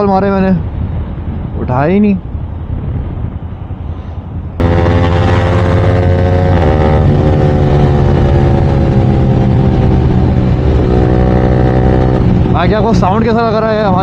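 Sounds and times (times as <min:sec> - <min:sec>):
muffled riding rumble: 0:00.0 - 0:14.0
motorcycle engine drone: 0:04.6 - 0:14.0.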